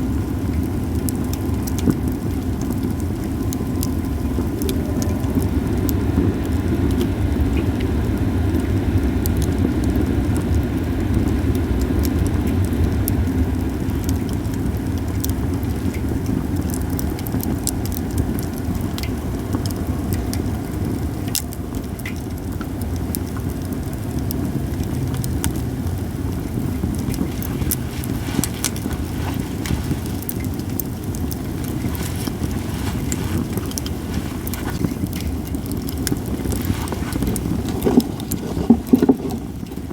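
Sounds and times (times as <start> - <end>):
low rumble: 0.0 - 9.0
campfire crackling and popping: 0.0 - 39.9.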